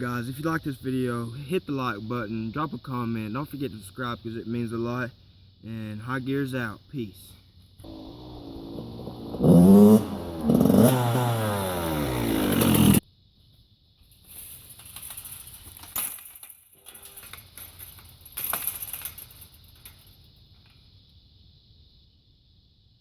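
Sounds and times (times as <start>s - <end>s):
dirt bike engine revving: 7.8s - 13.0s
rustling: 14.0s - 20.9s.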